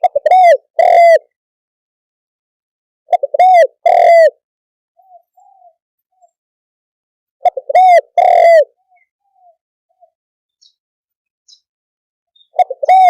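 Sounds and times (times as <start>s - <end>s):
dove cooing: 0.0s - 1.4s, 3.1s - 4.4s, 5.0s - 6.3s, 7.4s - 10.2s, 12.4s - 13.0s.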